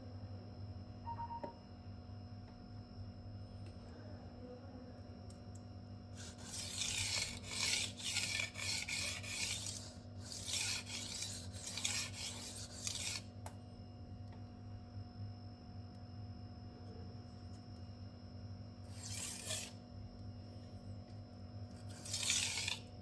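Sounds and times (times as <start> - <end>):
knife scraping on sharpening stone: 6.2 - 13.2, 18.9 - 19.8, 21.8 - 22.9.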